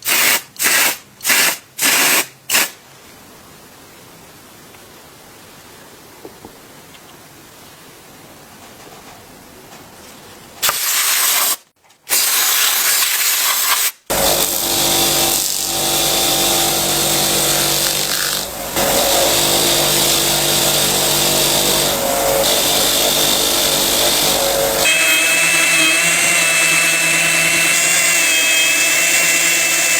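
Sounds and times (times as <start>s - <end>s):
power tool motor running: 14.1s - 29.9s.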